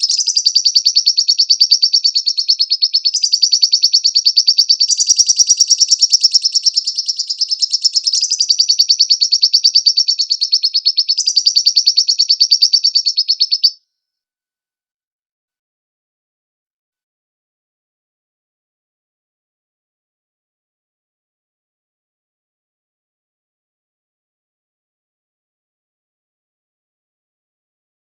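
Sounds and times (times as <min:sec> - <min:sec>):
lovebird chattering trill: 0:00.0 - 0:13.8.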